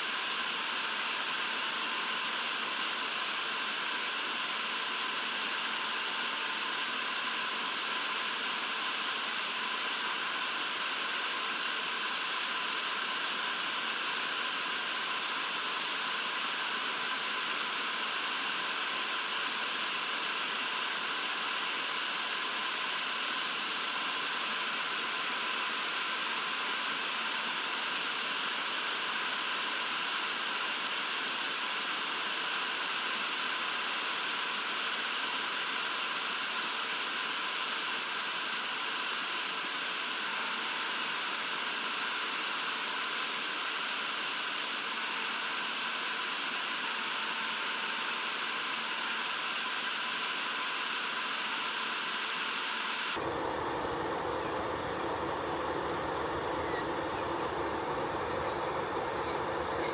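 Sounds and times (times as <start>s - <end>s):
electric nail drill whining: 40.7s - 59.9s.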